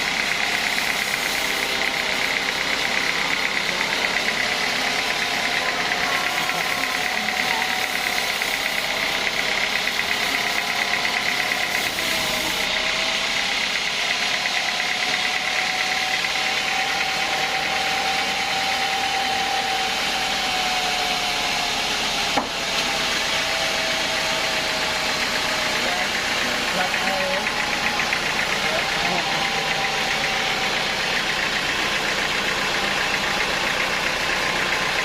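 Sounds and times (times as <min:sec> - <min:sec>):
machine whine: 0:00.0 - 0:35.0
sawmill machinery drone: 0:00.0 - 0:35.0.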